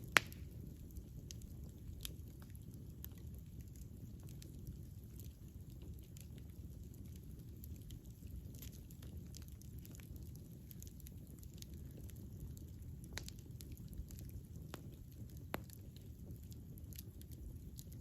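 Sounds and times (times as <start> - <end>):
campfire crackling and popping: 0.0 - 18.0.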